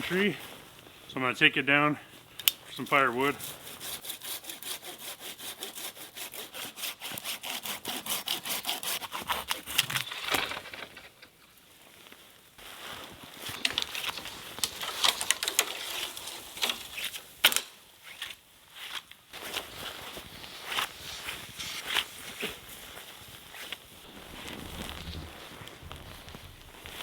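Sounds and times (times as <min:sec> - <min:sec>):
hand saw cutting wood: 0:03.2 - 0:10.7, 0:13.6 - 0:17.6
wood cracking and knocking: 0:09.6 - 0:11.6, 0:13.4 - 0:17.7.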